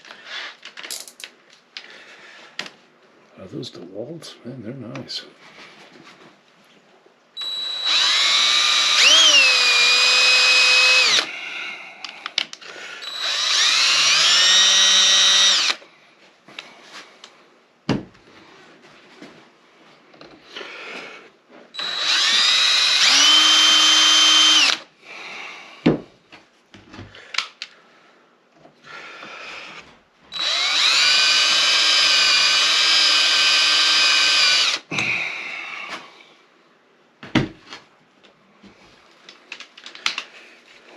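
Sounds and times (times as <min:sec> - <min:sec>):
electric drill whining: 0:07.4 - 0:11.3, 0:13.0 - 0:15.8, 0:21.8 - 0:24.9, 0:30.3 - 0:34.9.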